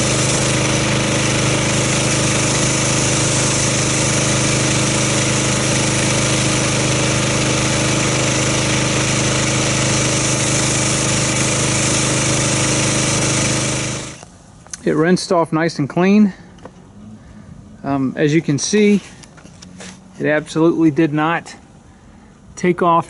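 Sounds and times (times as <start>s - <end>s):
pressure washer engine running: 0.0s - 14.2s
water jet hissing: 0.0s - 14.2s.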